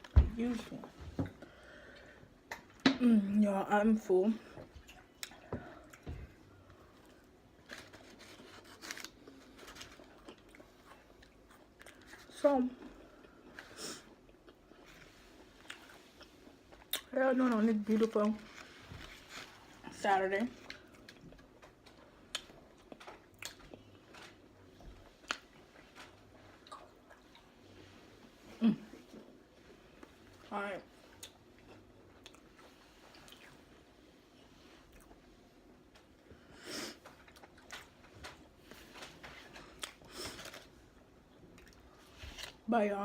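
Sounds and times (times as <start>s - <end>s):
rustling and handling noises: 6.0s - 11.3s, 14.9s - 26.6s, 36.9s - 42.7s.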